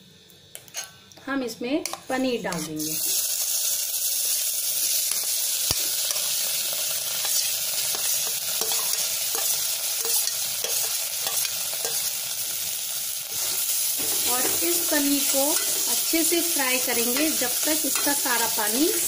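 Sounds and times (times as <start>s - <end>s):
food sizzling in hot fat: 0.0s - 19.0s
steel spoon scraping a plate: 0.6s - 1.0s.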